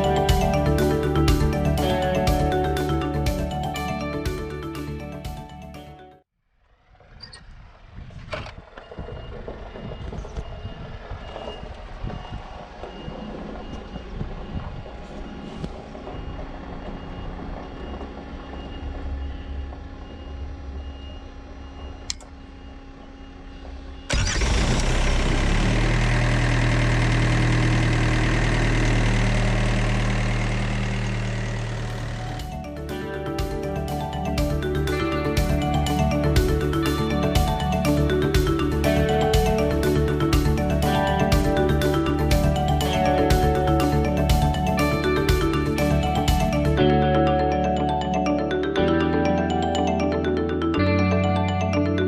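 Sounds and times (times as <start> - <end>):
loud engine with low hum: 6.6 - 46.8
diesel engine idling: 6.7 - 46.8.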